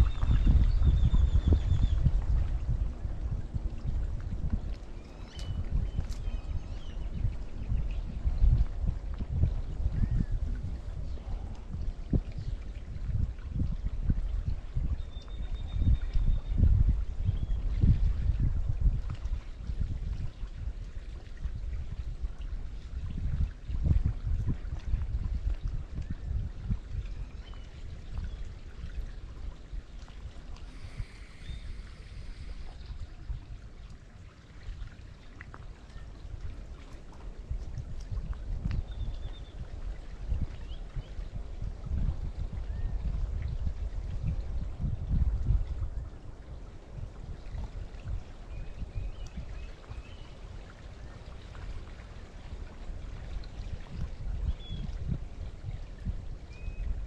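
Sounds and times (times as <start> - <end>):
river water flowing and lapping: 0.0 - 57.0
small trickles and splashes: 0.0 - 57.0
faint high chirp: 5.0 - 7.0.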